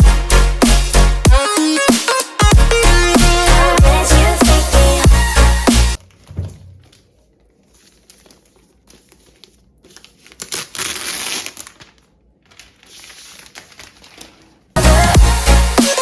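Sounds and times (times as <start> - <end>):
packaging crinkling and rustling: 6.0 - 14.8.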